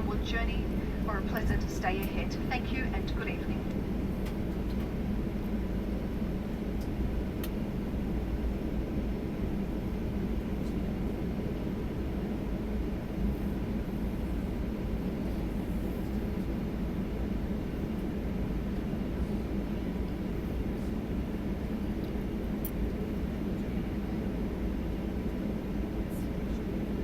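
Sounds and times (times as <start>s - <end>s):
aircraft cabin rumble: 0.0s - 27.0s
faint steady hum: 0.0s - 27.0s.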